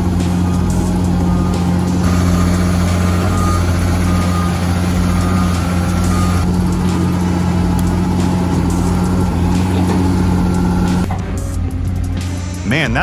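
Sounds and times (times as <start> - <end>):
bulldozer diesel engine drone: 0.0 - 11.2
faint high beeps: 0.2 - 6.5.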